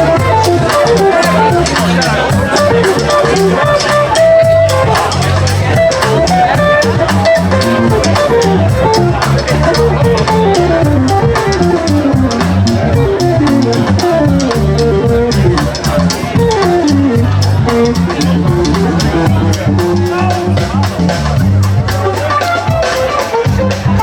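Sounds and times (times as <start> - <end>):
guitar playing descending runs: 0.0 - 20.9
bass line: 0.0 - 24.0
drum kit steady beat: 0.0 - 24.0.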